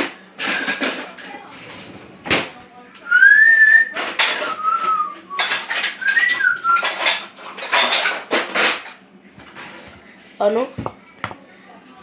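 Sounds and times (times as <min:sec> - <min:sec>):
kitchen items clattering: 0:00.0 - 0:02.6, 0:03.2 - 0:11.4
person whistling: 0:03.1 - 0:06.9.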